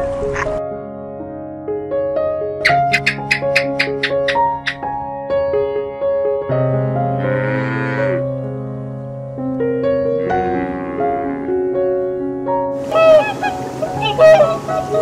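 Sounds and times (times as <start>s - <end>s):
gentle piano music: 0.0s - 15.0s
animal calls: 2.7s - 4.8s, 12.8s - 15.0s
loud honking calls: 12.8s - 15.0s.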